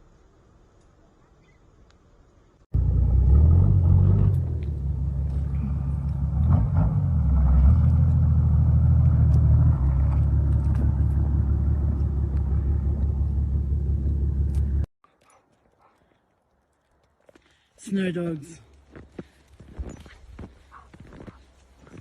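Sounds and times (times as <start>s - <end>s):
vehicle engine rumble: 2.5s - 14.9s.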